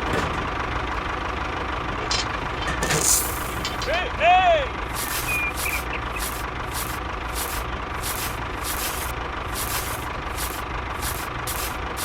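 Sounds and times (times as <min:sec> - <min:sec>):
small motor humming and whining: 0:04.8 - 0:12.0
short hissing bursts: 0:04.9 - 0:12.0.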